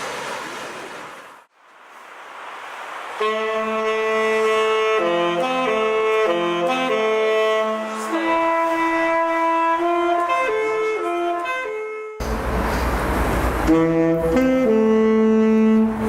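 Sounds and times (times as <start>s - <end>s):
slow saxophone melody: 3.2s - 12.7s, 13.6s - 16.0s.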